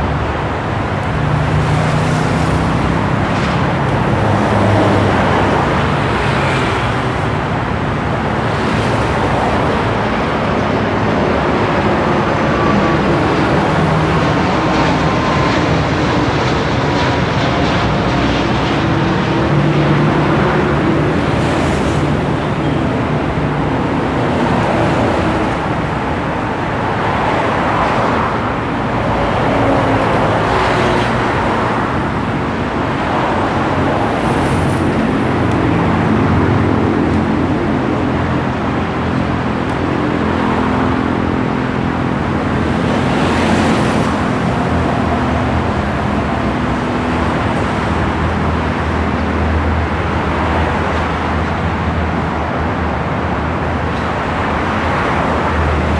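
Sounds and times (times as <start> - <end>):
vehicles passing: 0.0 - 55.9.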